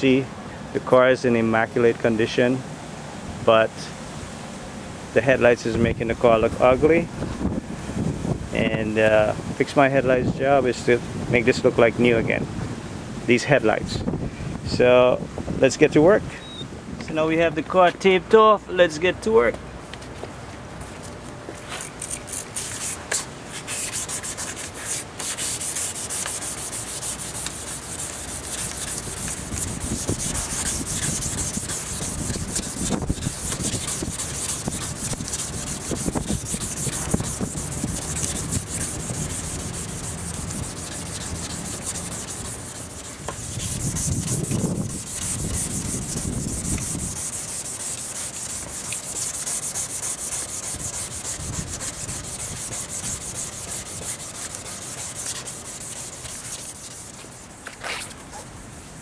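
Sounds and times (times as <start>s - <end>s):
sanding headlight lens: 21.8s - 57.6s.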